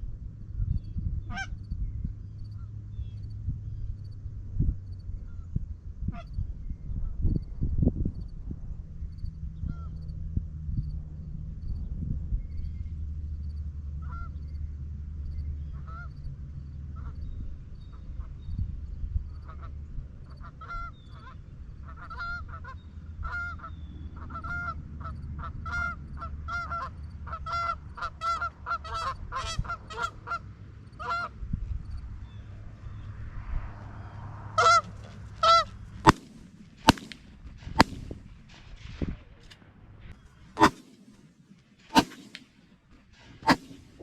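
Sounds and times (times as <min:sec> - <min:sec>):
geese honking: 0:26.5 - 0:30.4, 0:34.6 - 0:37.1
shotgun blasts: 0:36.1 - 0:38.6, 0:40.6 - 0:42.8, 0:43.4 - 0:44.0.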